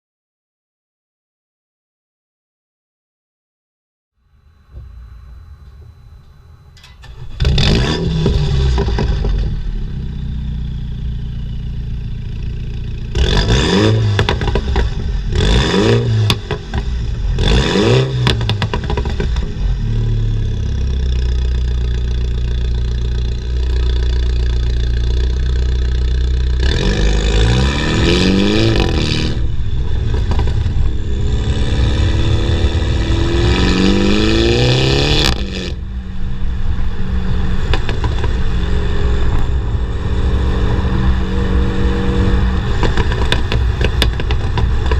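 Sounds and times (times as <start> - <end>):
car engine revving: 4.5 - 44.9
exhaust crackles and pops: 6.8 - 10.0, 13.0 - 17.5, 18.2 - 20.1, 28.4 - 33.1, 37.6 - 39.7, 40.6 - 44.9.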